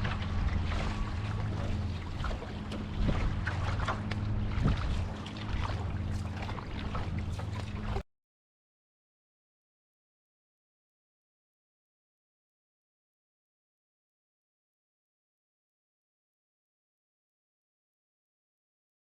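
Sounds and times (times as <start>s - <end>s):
water splashing around canoe: 0.0s - 8.0s
wind rumbling on microphone: 0.0s - 8.0s.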